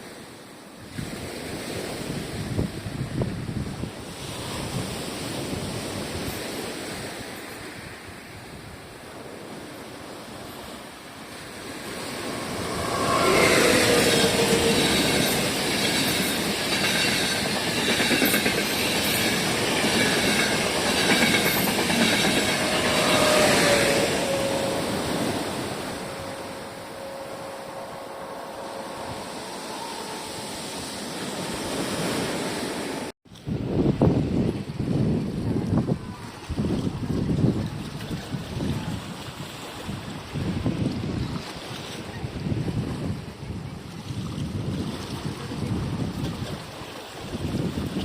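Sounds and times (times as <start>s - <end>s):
train passing close by: 0.0s - 33.2s
high whining tones: 11.4s - 31.9s.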